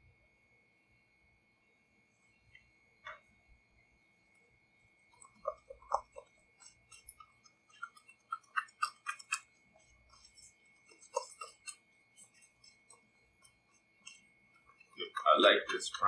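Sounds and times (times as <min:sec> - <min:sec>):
spoon clicking and scraping container: 0:05.1 - 0:16.0.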